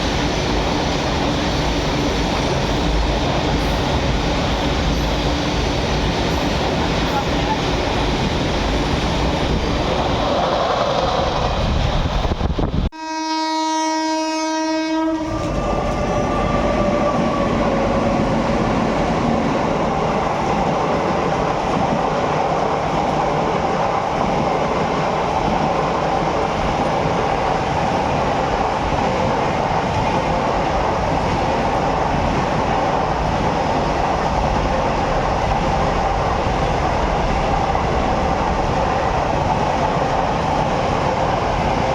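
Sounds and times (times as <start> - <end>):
freight train rumble and clatter: 0.0 - 41.9
locomotive horn: 12.9 - 18.0.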